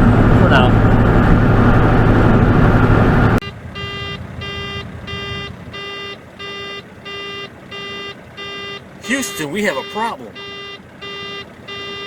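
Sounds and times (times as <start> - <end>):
truck rumbling on road: 0.0 - 12.0
warning beeper beeping: 3.4 - 12.0.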